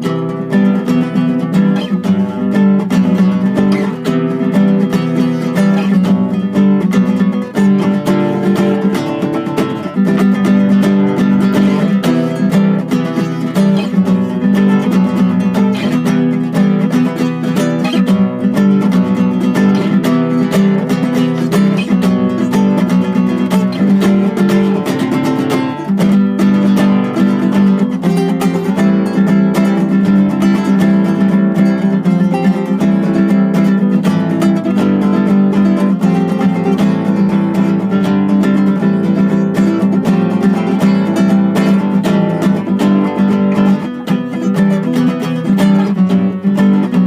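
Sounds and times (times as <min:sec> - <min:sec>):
acoustic guitar strumming chords: 0:00.0 - 0:47.0.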